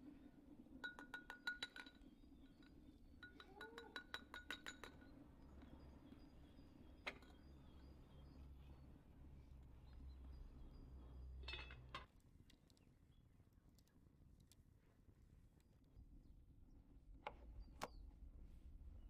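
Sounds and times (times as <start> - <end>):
utensil clinking on metal: 11.4 - 12.0.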